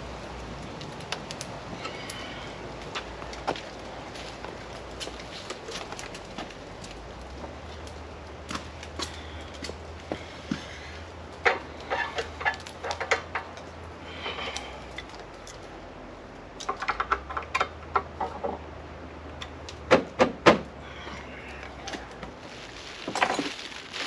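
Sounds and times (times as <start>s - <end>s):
handling clicks taps and clatter: 16.6s - 18.7s.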